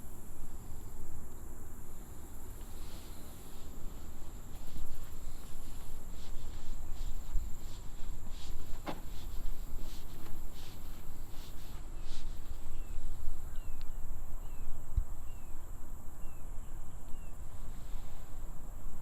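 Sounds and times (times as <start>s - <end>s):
high insect buzz: 0.0s - 19.0s
bird chirping: 11.9s - 17.4s.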